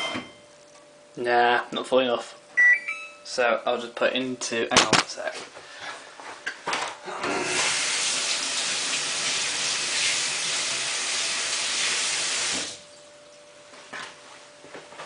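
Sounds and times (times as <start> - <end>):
washing machine filling with water: 7.2 - 13.0.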